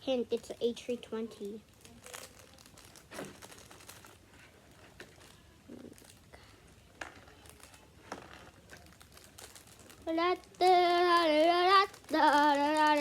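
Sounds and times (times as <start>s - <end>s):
packaging crinkling: 1.4s - 13.0s
child singing: 10.0s - 13.0s.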